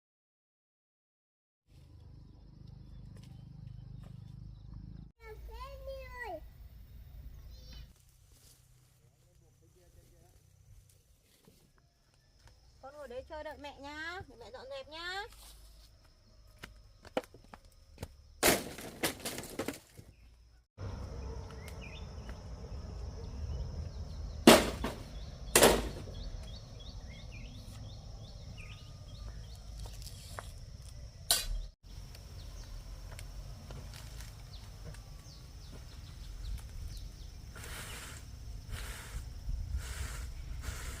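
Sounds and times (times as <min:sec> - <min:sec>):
faint chirps: 0:01.8 - 0:08.0.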